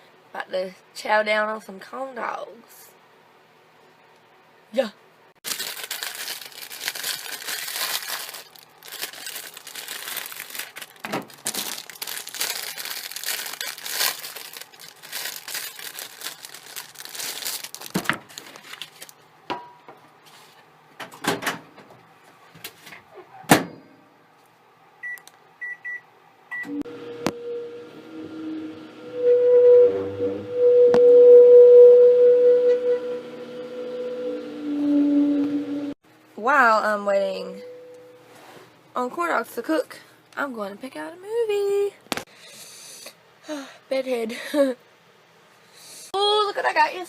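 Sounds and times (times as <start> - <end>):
packaging rustling and crinkling: 5.4 - 19.2
microwave keypad beeps: 25.0 - 26.8
microwave humming: 25.0 - 36.0.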